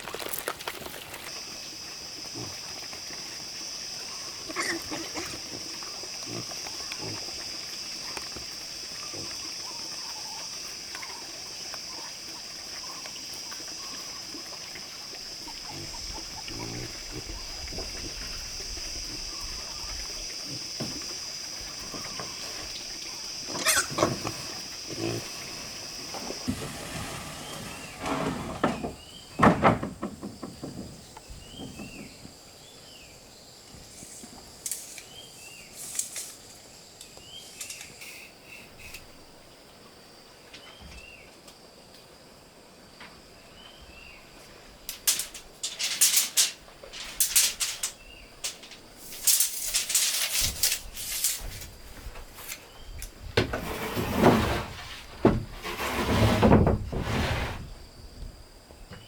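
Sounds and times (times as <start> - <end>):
rough rasping noise bursts: 53.6 - 57.7.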